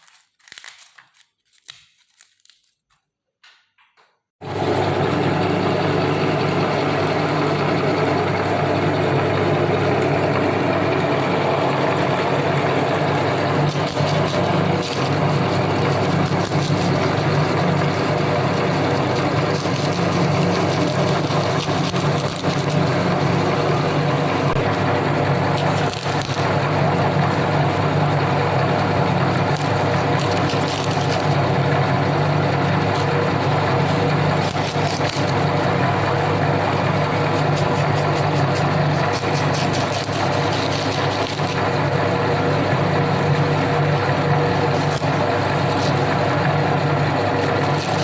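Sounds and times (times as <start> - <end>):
meat grinder motor humming: 4.4 - 48.0.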